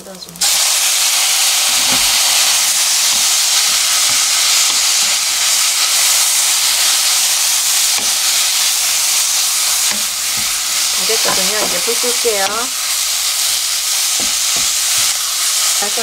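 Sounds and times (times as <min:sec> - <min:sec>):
peppers sizzling in hot oil: 0:00.0 - 0:16.0
wooden spatula knocking on pan: 0:11.2 - 0:12.0.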